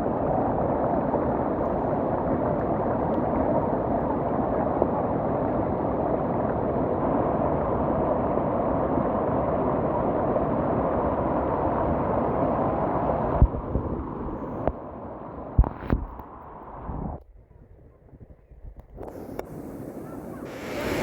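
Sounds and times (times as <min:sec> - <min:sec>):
river rushing: 0:19.6 - 0:21.0.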